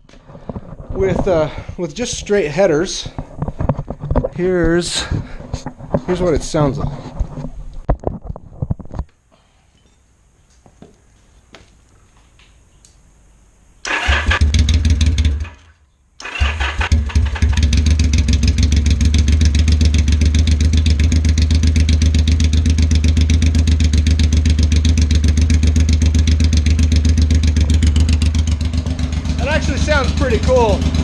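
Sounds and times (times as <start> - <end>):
motorcycle engine starting and idling: 13.8 - 31.0.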